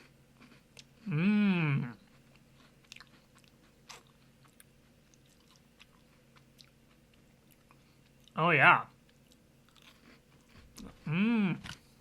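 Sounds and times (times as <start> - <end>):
cookie crunching while chewed: 1.9 - 8.4, 9.0 - 12.0.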